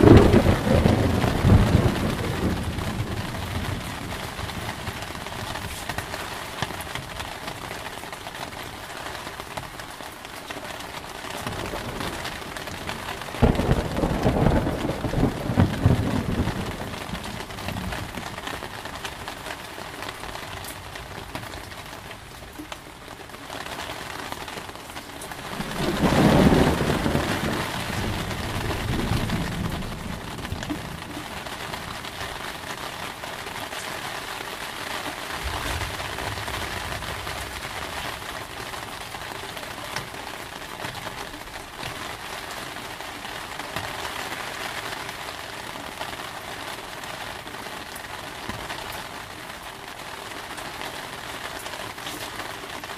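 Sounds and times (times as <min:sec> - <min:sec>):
thunder clap and rumble: 0:00.0 - 0:06.8, 0:11.4 - 0:18.8, 0:25.2 - 0:33.2, 0:35.4 - 0:39.3
heavy rain: 0:00.0 - 0:52.9.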